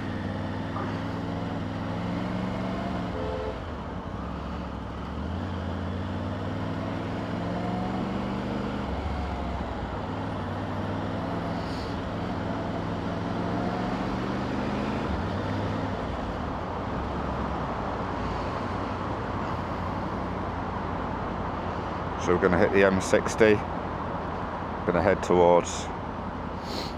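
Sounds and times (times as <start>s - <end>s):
motorcycle engine revving: 0.0s - 16.4s
wind and road noise: 0.0s - 26.9s.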